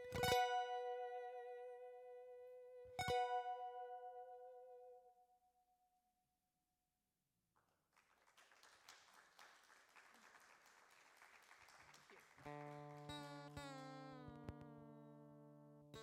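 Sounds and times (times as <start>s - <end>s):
acoustic guitar chord strummed: 0.0s - 4.8s, 12.4s - 16.0s
faint applause: 7.6s - 13.8s.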